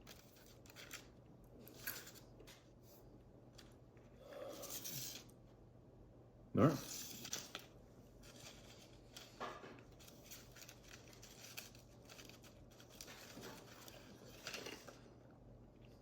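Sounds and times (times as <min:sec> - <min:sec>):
crunching and chewing: 0:08.2 - 0:15.2.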